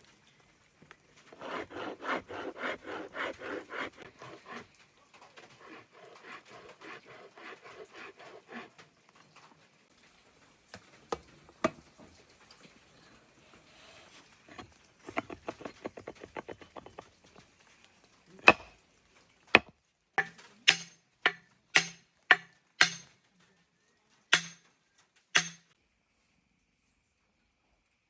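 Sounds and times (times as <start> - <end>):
light rapid chopping taps: 18.5 - 18.7, 19.6 - 23.0
sharp chops: 18.5 - 18.7, 19.6 - 23.1, 24.4 - 24.6, 25.4 - 25.6.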